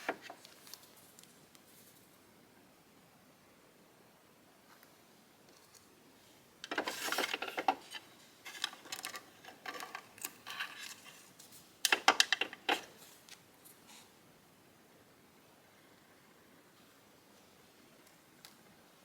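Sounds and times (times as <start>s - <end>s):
small objects clicking and clattering: 6.6s - 13.4s
ticks and rustles: 6.6s - 13.8s.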